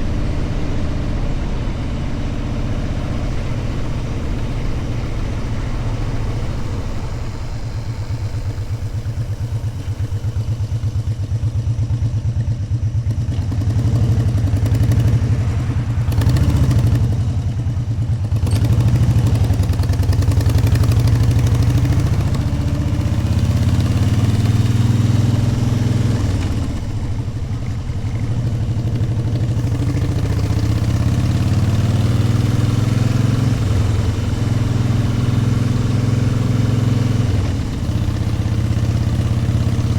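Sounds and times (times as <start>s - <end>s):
wind noise: 0.0s - 11.8s
motorcycle engine revving: 0.0s - 39.9s.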